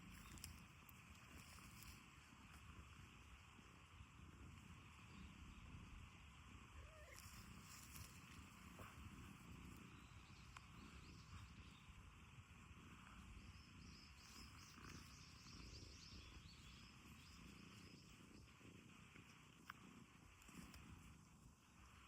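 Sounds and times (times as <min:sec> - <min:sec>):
cat purring faintly: 0:00.0 - 0:22.0.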